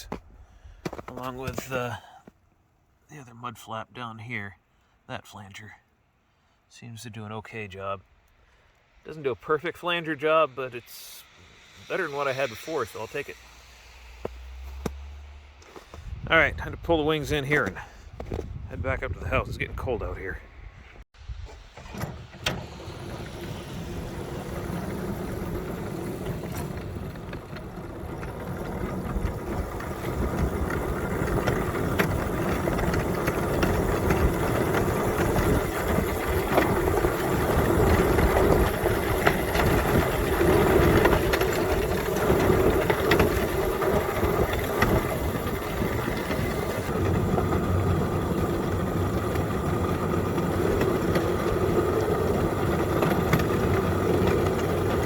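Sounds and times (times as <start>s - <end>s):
small rail vehicle engine running: 10.8s - 16.0s, 21.8s - 55.0s.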